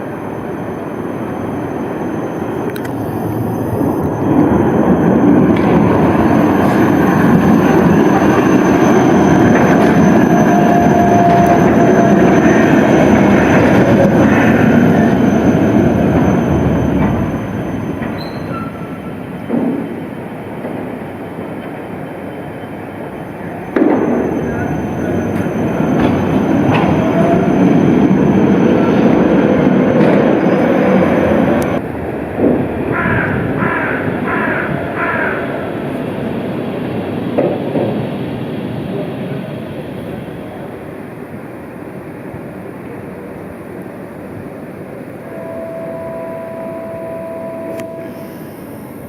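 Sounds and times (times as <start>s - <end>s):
tram rumbling on rails: 0.0s - 49.0s
faint thin squeal: 13.9s - 19.2s, 47.9s - 48.8s
faint whine: 45.2s - 49.0s.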